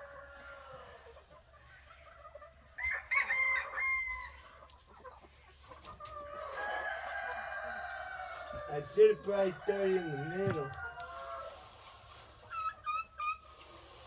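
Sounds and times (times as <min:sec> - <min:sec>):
chickens calling faintly: 0:00.0 - 0:14.0
rooster crowing: 0:02.8 - 0:04.4, 0:09.4 - 0:11.5.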